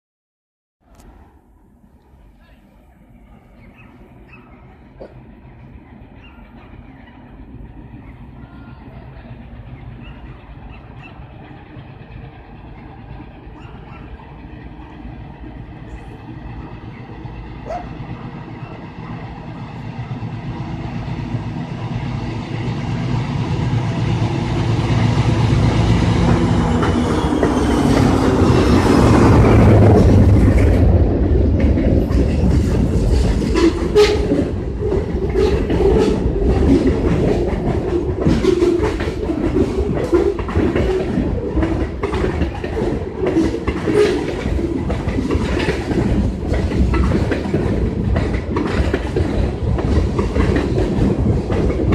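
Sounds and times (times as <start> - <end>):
diesel locomotive passing: 0.8 - 51.9
railcars rumbling: 0.8 - 51.9
wheels clacking over rail joints: 9.2 - 20.8, 24.1 - 51.9.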